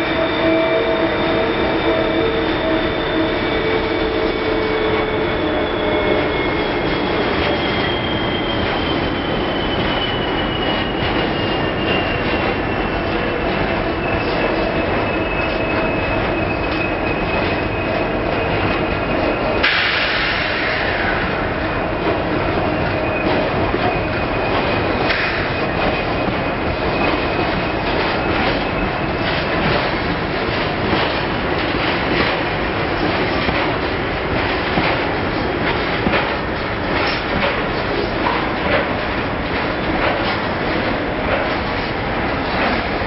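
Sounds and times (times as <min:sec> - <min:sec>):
high wheel squeal: 0:00.0 - 0:34.0
diesel locomotive hum: 0:00.0 - 0:43.0
steel wheels rumbling on rail: 0:00.0 - 0:43.0.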